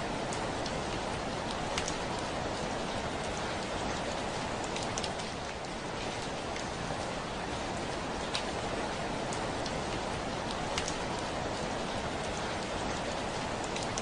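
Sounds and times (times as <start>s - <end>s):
heavy rain on a window: 0.0s - 14.0s
raindrops ticking on glass: 0.2s - 5.7s, 9.3s - 14.0s.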